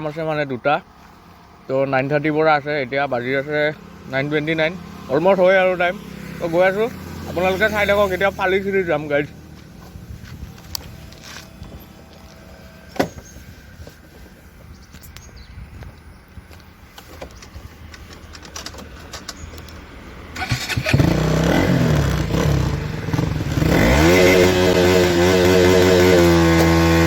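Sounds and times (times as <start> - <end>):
motorcycle engine revving: 3.2 - 14.0, 20.0 - 27.0.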